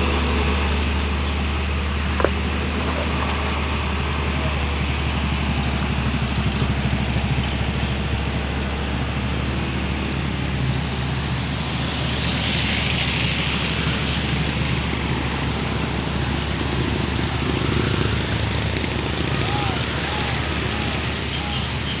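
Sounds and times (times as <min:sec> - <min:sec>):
dump truck diesel engine: 0:00.0 - 0:22.0.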